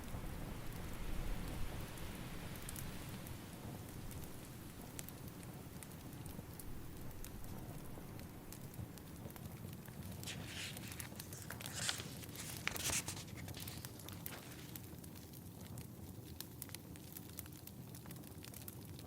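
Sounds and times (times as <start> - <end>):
fire crackling: 0.0 - 19.0
book pages turning: 9.9 - 14.9.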